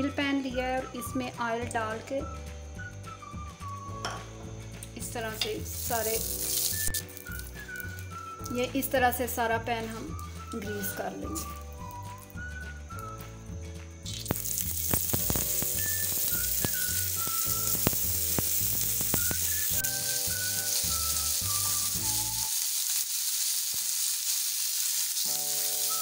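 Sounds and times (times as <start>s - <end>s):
background music: 0.0s - 22.5s
oil sizzling in a pan: 2.8s - 13.4s, 14.0s - 26.0s
food pieces clicking on pan: 5.4s - 8.6s, 14.1s - 26.0s.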